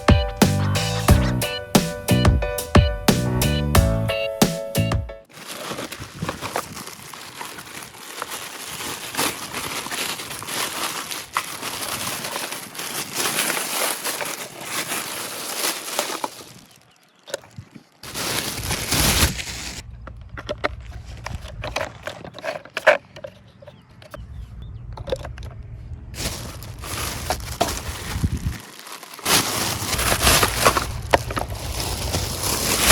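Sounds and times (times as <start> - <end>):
packaging crinkling and rustling: 5.3 - 23.4, 26.2 - 32.9.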